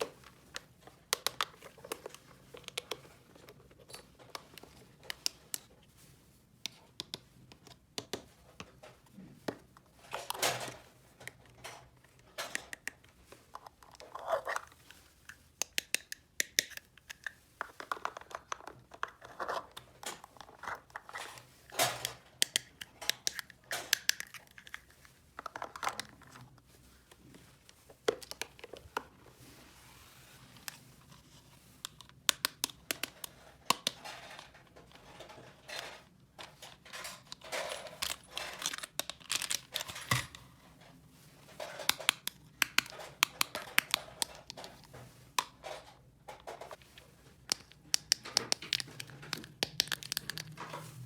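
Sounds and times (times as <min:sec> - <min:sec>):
plastic toy pieces clicking: 0:15.6 - 0:18.6, 0:21.8 - 0:24.6, 0:37.0 - 0:40.2, 0:41.6 - 0:44.7, 0:47.5 - 0:50.6
packaging crinkling and tearing: 0:37.3 - 0:40.4, 0:48.5 - 0:51.0.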